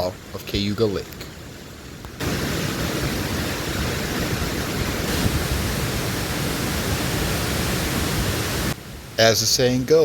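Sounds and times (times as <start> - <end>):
waterfall rushing: 1.3 - 9.3.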